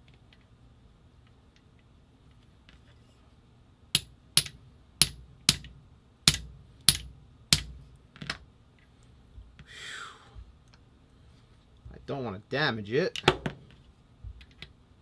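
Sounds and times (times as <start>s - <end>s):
sharp hammer strikes: 4.0s - 7.8s.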